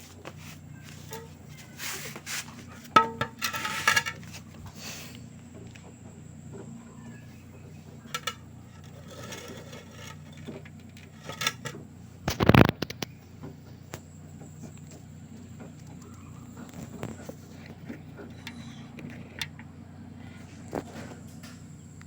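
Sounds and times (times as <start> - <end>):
washing machine drum humming: 0.0 - 22.0.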